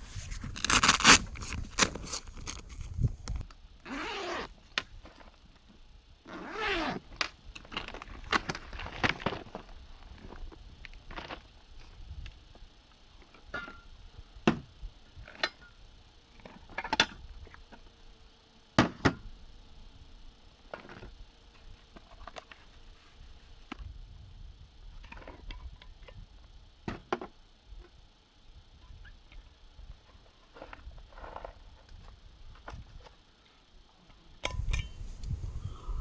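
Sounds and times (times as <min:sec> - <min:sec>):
faint low rumble: 0:34.6 - 0:36.0.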